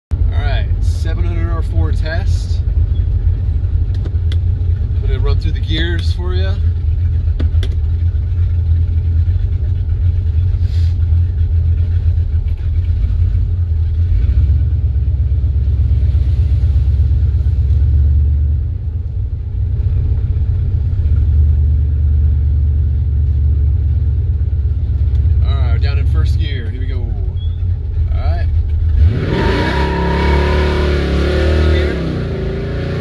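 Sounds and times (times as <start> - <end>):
car engine running from inside: 0.2 - 33.0.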